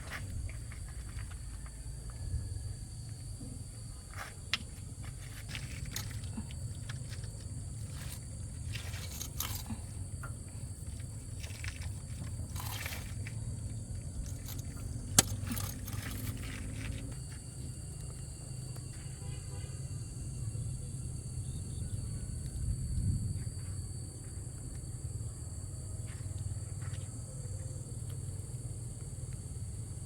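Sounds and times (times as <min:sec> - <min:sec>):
scraping: 0:05.1 - 0:17.4.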